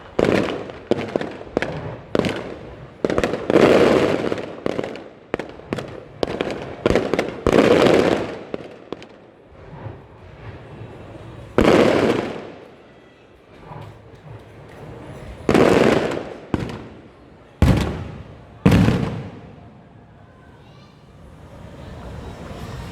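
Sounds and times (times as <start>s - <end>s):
firework shells bursting: 13.4s - 19.7s.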